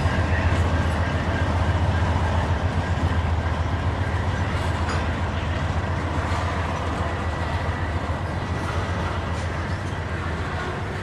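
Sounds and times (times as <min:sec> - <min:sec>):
freight train rolling past: 0:00.0 - 0:11.0.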